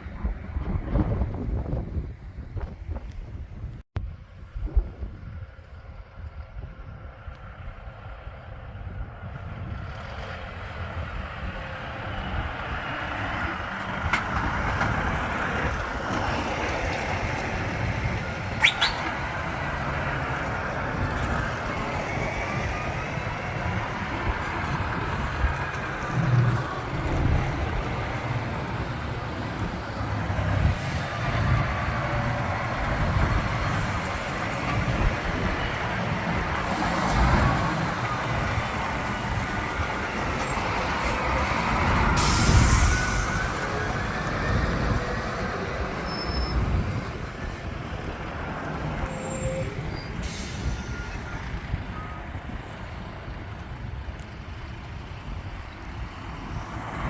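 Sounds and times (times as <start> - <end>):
road noise: 0.0 - 57.0
truck diesel engines rumbling: 0.0 - 57.0
quick rising chirps: 18.6 - 19.6.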